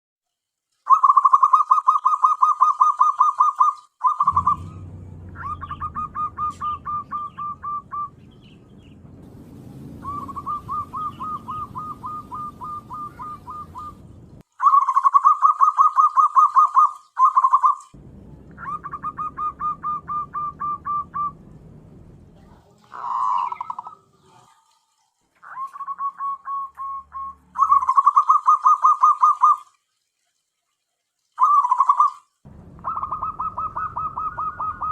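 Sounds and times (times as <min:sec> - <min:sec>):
dove cooing: 0:00.9 - 0:08.6, 0:09.7 - 0:17.8, 0:18.6 - 0:21.4, 0:22.9 - 0:24.6, 0:32.8 - 0:34.9
low rumbling noise: 0:04.2 - 0:14.4, 0:18.0 - 0:24.2, 0:32.5 - 0:34.9.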